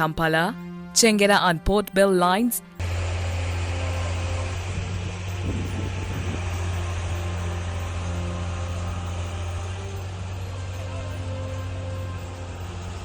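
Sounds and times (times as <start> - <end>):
road vehicle rumble and hiss: 2.8 - 13.0.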